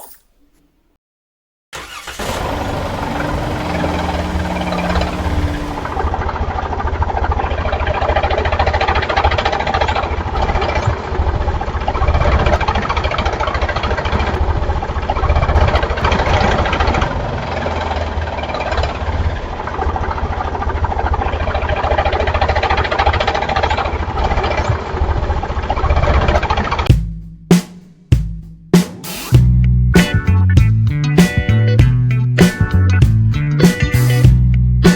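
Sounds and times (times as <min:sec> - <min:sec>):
tractor engine knocking: 0:01.8 - 0:25.2.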